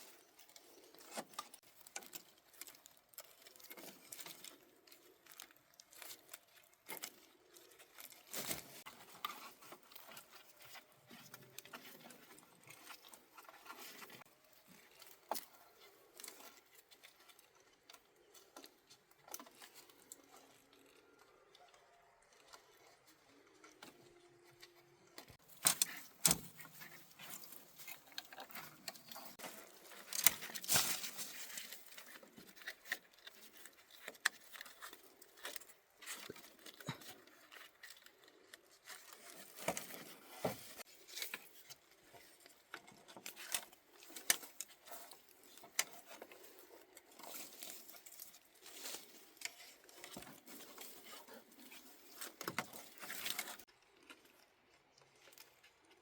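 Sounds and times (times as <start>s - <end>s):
building materials rustling: 0.0s - 55.9s.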